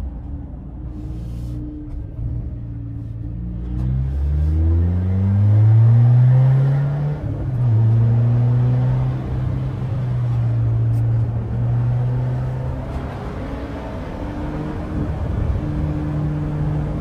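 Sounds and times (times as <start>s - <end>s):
car engine accelerating hard: 3.4s - 17.0s.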